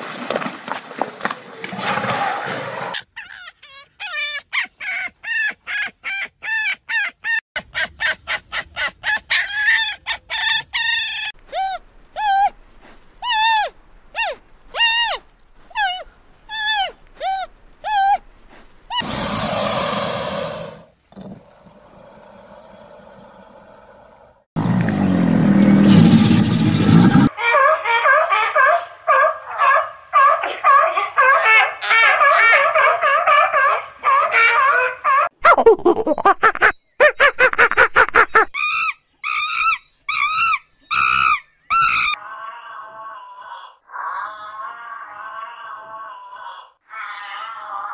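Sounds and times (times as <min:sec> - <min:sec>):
baboons yelping and screeching: 0:03.0 - 0:12.6, 0:27.3 - 0:35.3, 0:36.1 - 0:47.8
crocodile hissing: 0:18.9 - 0:24.4.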